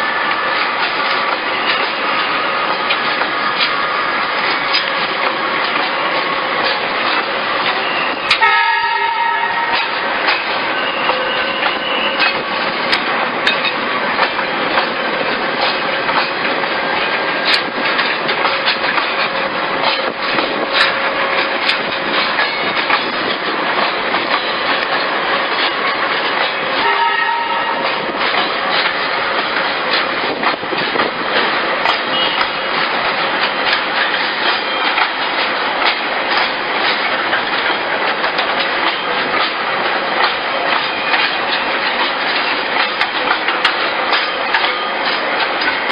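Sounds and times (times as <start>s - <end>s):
train wheels clattering on rails: 0.0s - 45.9s
train horn: 8.3s - 10.0s, 26.8s - 28.0s, 32.1s - 32.7s.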